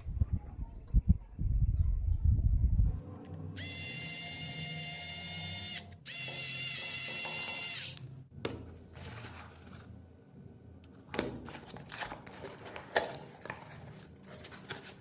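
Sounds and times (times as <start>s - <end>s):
small electric motor whining: 3.6s - 8.0s.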